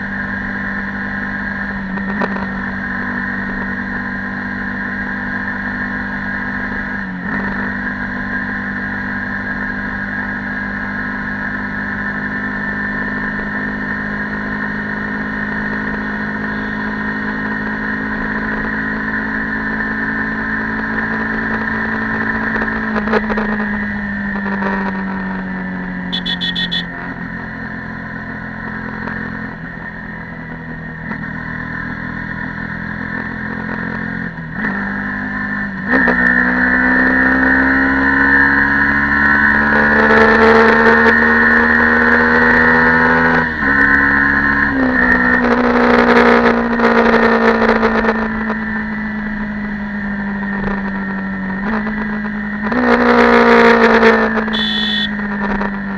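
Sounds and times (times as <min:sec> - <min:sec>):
motorcycle engine running: 0:00.0 - 0:55.9
high-pitched pulsing: 0:26.1 - 0:27.1, 0:54.6 - 0:55.1.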